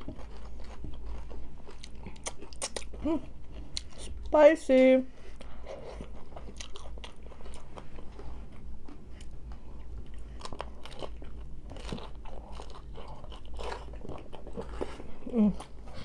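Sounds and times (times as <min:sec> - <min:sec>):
wet chewing: 0:00.0 - 0:04.2, 0:05.4 - 0:16.0
taco shell crunching: 0:10.2 - 0:15.0.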